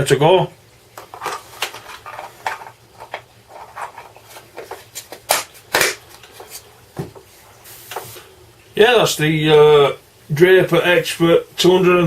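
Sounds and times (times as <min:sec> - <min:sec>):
plastic parts clicking and knocking: 0:01.0 - 0:06.4.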